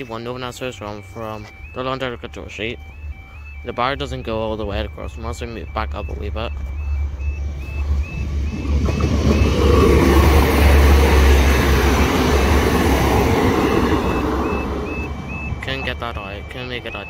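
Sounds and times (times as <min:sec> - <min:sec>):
crossing alarm repeating tone: 0:00.0 - 0:17.0
train rumble and wheel noise: 0:07.1 - 0:16.2.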